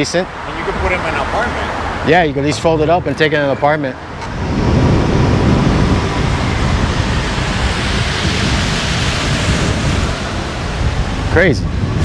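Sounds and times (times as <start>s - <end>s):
wind buffeting microphone: 4.0s - 12.0s.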